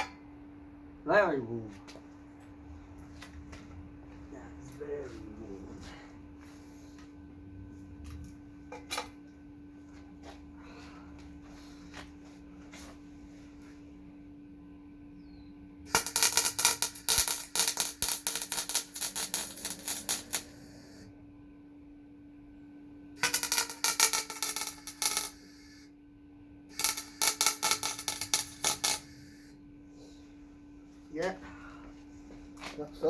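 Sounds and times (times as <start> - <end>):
steady low hum: 0.0 - 33.0
welding arc crackling: 15.9 - 21.0, 23.2 - 25.8, 26.7 - 29.4.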